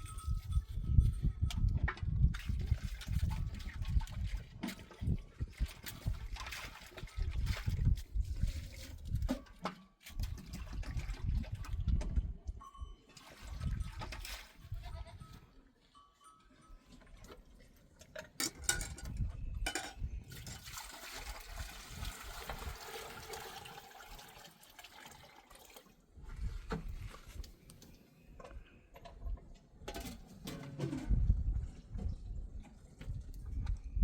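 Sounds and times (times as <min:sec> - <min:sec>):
water pouring and splashing: 0:02.1 - 0:12.3, 0:13.2 - 0:14.7, 0:17.2 - 0:27.6.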